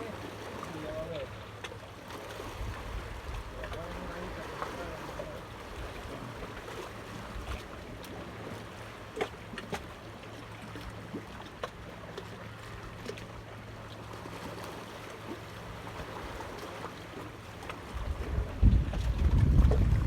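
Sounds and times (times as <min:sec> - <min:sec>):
wind buffeting microphone: 0:17.9 - 0:20.0.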